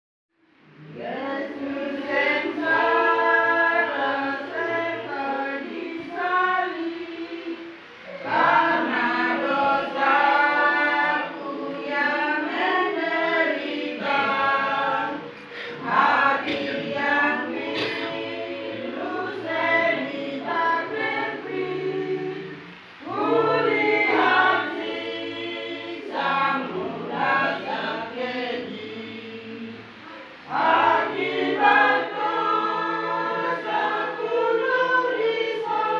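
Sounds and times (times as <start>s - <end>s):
choir singing: 0.4s - 35.9s
singers breathing: 15.3s - 15.8s.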